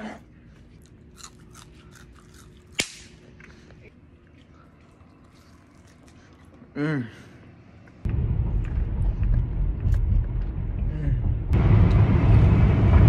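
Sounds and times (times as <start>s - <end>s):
person chewing: 0.6s - 6.8s.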